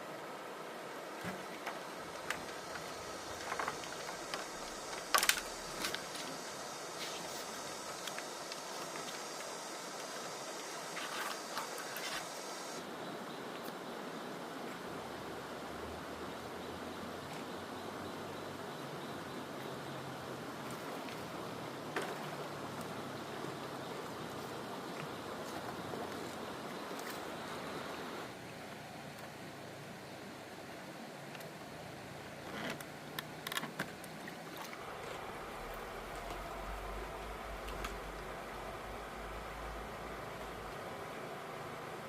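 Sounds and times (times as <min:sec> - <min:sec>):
steady background hiss: 0:00.0 - 0:42.0.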